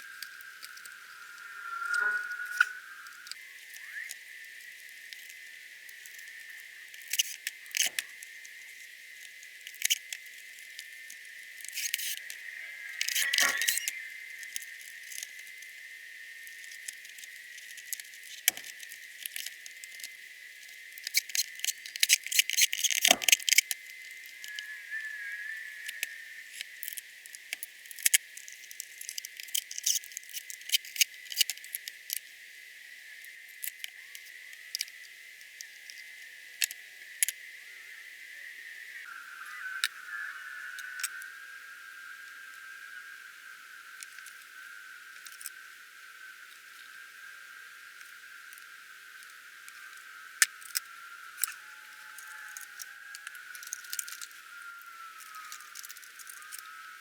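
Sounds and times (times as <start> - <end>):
faint high whine: 0.0 - 9.5, 10.2 - 17.8, 23.7 - 26.9, 33.9 - 57.0
tools and parts clicking: 13.0 - 14.0.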